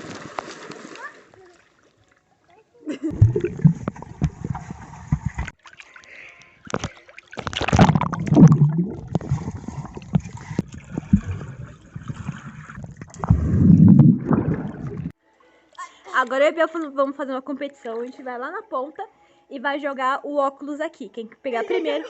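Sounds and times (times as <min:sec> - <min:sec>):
pool water splashing: 0:00.0 - 0:15.2.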